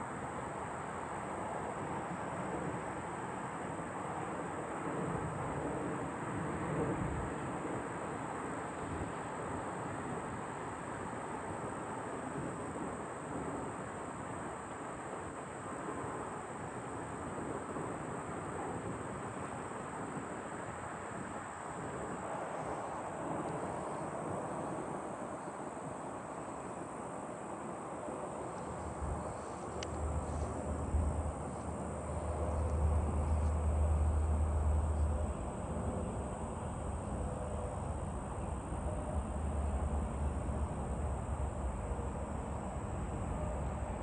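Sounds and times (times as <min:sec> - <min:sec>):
airplane roar overhead: 0:00.0 - 0:44.0
insects chirping: 0:19.0 - 0:44.0.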